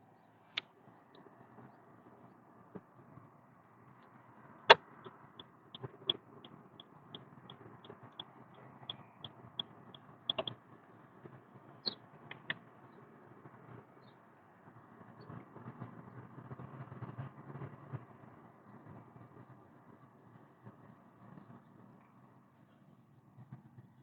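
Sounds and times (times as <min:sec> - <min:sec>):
car road noise: 0:00.0 - 0:18.8
turn signal ticking: 0:04.0 - 0:10.7, 0:11.8 - 0:12.6
sharp clicks: 0:10.3 - 0:10.6.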